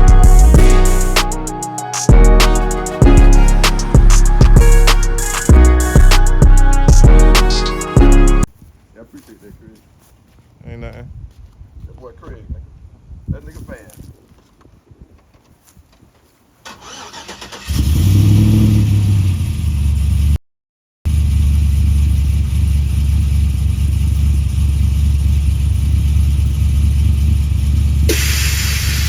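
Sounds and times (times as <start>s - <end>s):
vehicle engine rumbling: 17.7s - 20.4s, 21.1s - 29.0s
hiss: 28.1s - 29.0s.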